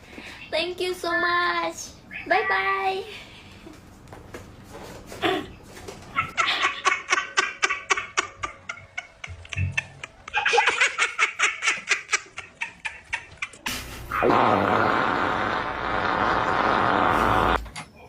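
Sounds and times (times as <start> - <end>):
person laughing: 6.3 - 13.8.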